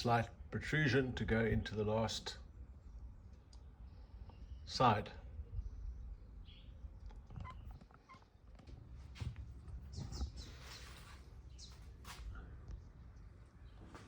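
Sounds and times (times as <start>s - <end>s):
short wooden squeaks: 7.2s - 8.3s.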